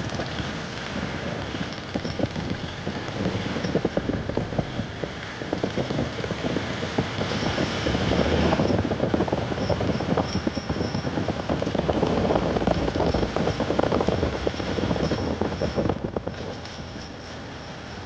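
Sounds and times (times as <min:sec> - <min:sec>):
motorbike rattling on rough track: 0:00.0 - 0:18.0.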